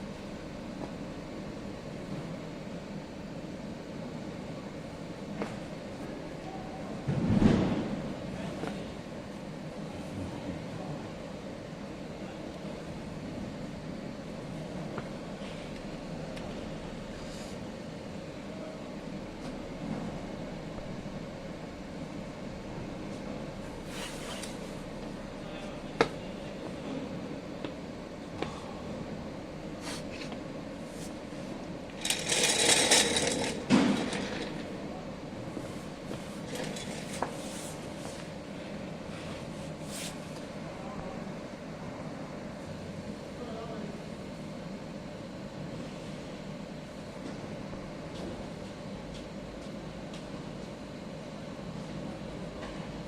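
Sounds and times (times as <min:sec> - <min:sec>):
fan hum: 0:00.0 - 0:53.0
thud: 0:07.1 - 0:08.0.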